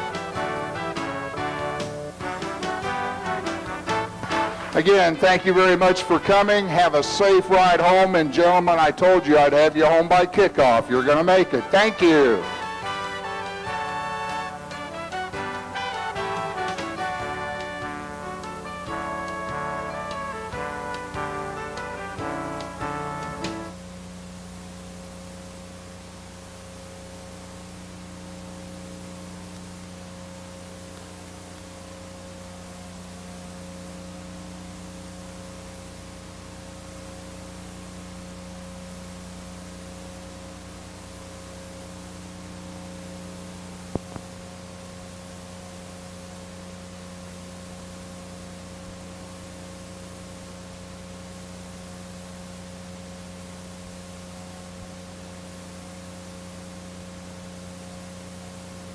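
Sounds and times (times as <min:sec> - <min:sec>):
electrical hum: 0:00.0 - 0:58.9.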